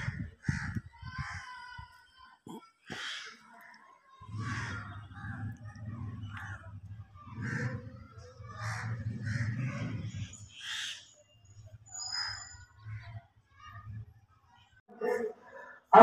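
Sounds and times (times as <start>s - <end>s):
low rumble: 4.3s - 10.4s.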